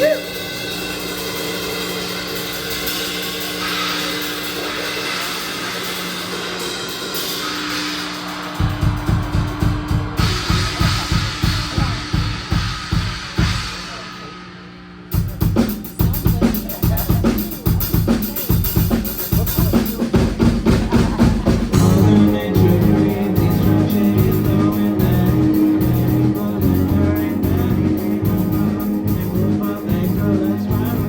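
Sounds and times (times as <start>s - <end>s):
drum kit with crashing cymbals: 0.0s - 31.0s
bass drum and tom hits: 15.2s - 31.0s
held low tone: 21.1s - 31.0s.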